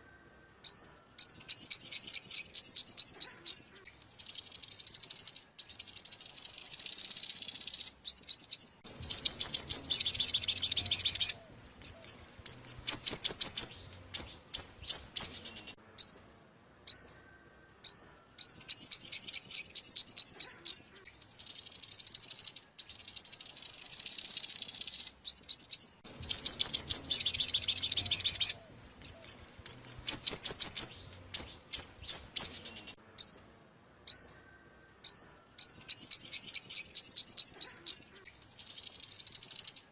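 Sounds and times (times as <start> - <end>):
sharp bird chirps: 0.0 - 39.9
bird trilling: 0.6 - 16.3, 16.9 - 33.5.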